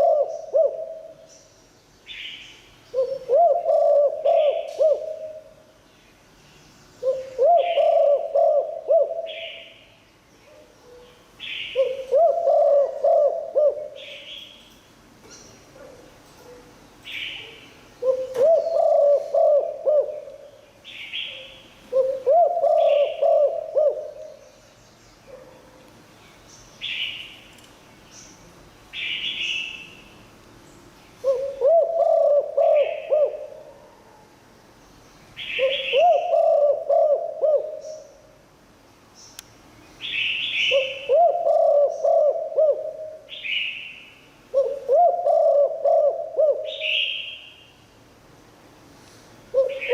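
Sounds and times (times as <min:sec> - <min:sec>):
dove cooing: 0:00.0 - 0:01.3, 0:02.9 - 0:05.5, 0:07.0 - 0:09.8, 0:11.7 - 0:14.1, 0:17.4 - 0:20.4, 0:21.9 - 0:24.4, 0:31.2 - 0:34.2, 0:35.4 - 0:38.2, 0:40.7 - 0:43.4, 0:44.5 - 0:47.3, 0:49.5 - 0:49.9.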